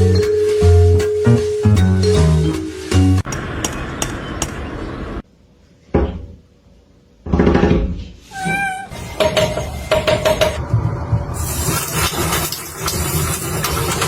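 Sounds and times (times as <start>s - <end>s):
music: 0.0s - 3.3s
cat meowing: 8.3s - 9.0s.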